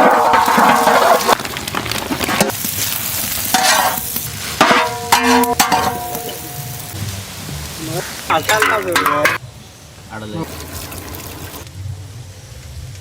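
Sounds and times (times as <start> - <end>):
utensil scraping a pan: 0.0 - 2.5, 3.4 - 6.6
food sizzling in a pan: 2.4 - 9.4, 10.1 - 11.7.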